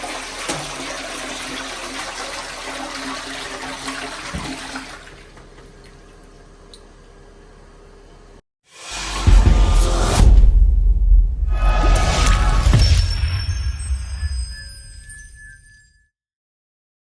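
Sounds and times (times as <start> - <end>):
toilet flushing: 0.0 - 6.2.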